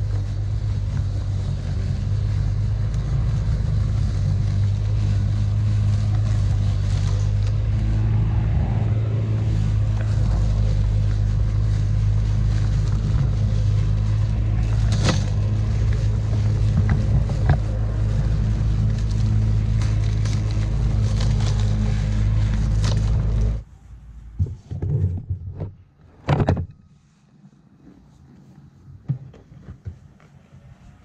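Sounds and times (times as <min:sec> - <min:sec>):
electric lawn mower humming: 0:00.0 - 0:23.6.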